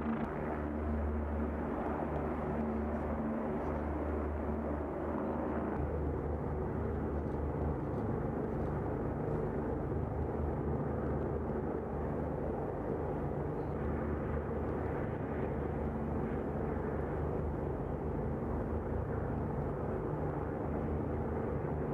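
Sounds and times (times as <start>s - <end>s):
low hum: 0.0s - 11.8s
aircraft engine drone: 0.0s - 21.9s.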